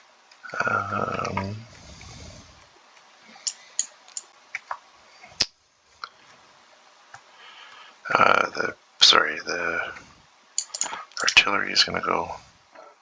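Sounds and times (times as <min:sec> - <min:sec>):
faint microphone hiss: 0:00.0 - 0:13.0
computer mouse clicking: 0:03.5 - 0:04.8, 0:10.6 - 0:11.4.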